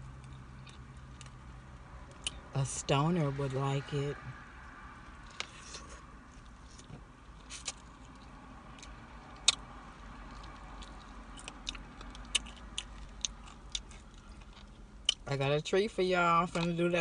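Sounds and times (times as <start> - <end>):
fried chicken crunching: 5.3 - 15.2.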